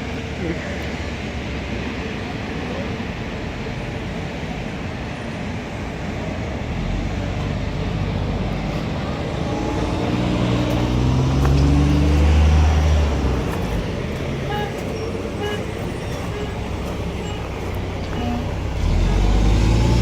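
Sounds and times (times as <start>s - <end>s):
car engine revving: 8.5s - 20.0s.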